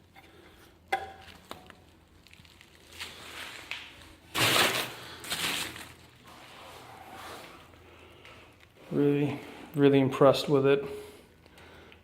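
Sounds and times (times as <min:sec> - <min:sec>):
wrapping rustling: 0:02.0 - 0:07.8.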